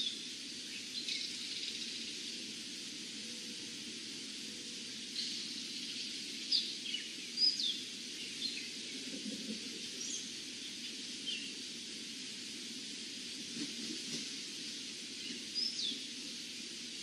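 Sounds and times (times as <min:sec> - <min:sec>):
steady background hiss: 0:00.0 - 0:17.0
bird chirping: 0:05.2 - 0:08.8.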